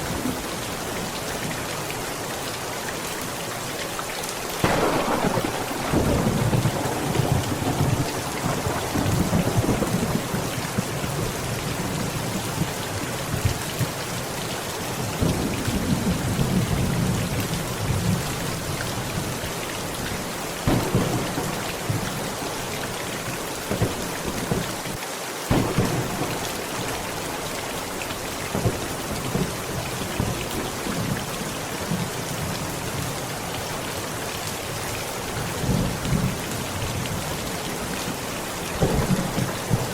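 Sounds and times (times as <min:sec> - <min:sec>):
heavy rain: 0:00.0 - 0:39.9
sharp thunder claps: 0:04.6 - 0:11.3, 0:20.6 - 0:24.7, 0:25.5 - 0:27.4, 0:28.5 - 0:30.4, 0:38.8 - 0:39.9
thunder rolling: 0:04.6 - 0:11.9, 0:20.6 - 0:24.8, 0:25.5 - 0:31.1, 0:38.8 - 0:39.9.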